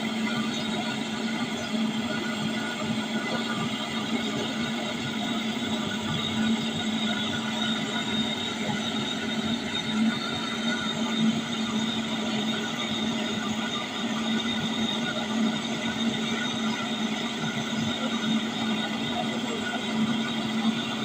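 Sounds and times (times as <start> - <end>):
faint high whine: 0.0 - 21.0
low mechanical drone: 0.0 - 21.0.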